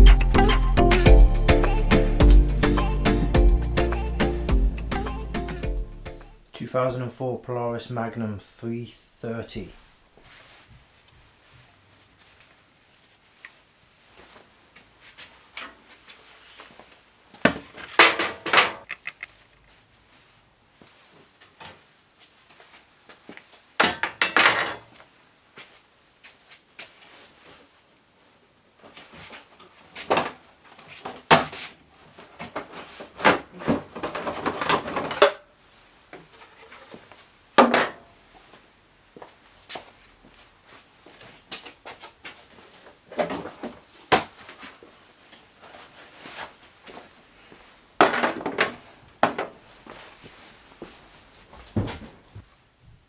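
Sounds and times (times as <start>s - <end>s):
hard objects clunking and rattling: 17.4s - 19.4s, 32.4s - 35.4s, 48.0s - 49.6s.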